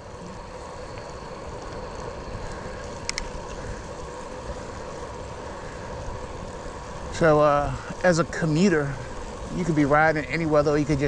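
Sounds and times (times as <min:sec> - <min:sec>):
bicycle tyres rolling on wet trail: 0:00.0 - 0:11.0
wind: 0:00.0 - 0:11.0.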